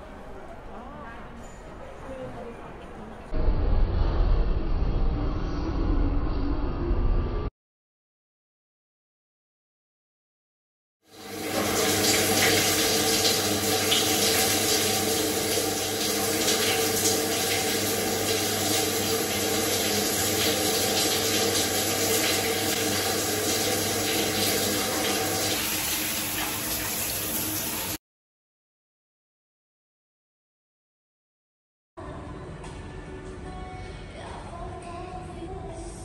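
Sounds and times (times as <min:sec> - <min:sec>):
shower water pouring: 0:11.1 - 0:28.0.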